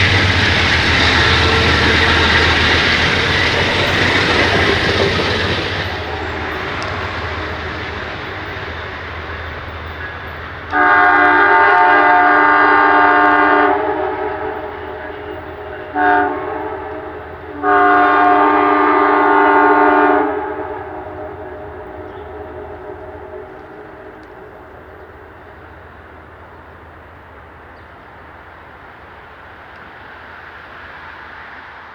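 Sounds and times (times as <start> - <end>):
locomotive air horn: 0.0 - 9.3, 10.0 - 24.8
train rumbling on rails: 0.0 - 31.9.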